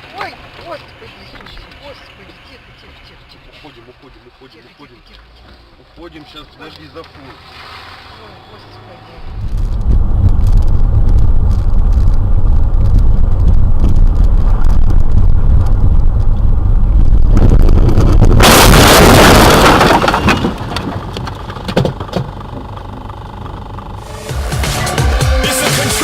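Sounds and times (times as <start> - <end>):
road and wind noise: 0.0 - 24.3
car crash: 7.0 - 22.8.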